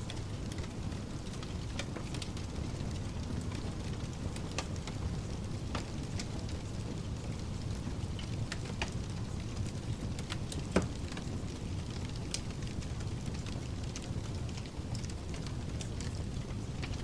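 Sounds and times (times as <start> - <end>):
fireplace crackling and popping: 0.0 - 17.0
low rush of pink noise: 0.0 - 17.0.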